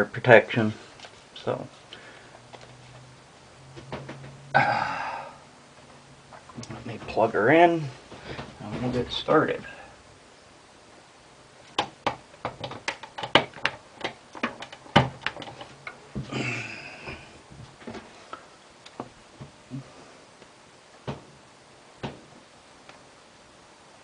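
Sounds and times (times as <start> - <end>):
tools clicking and knocking on bench: 11.8 - 16.0.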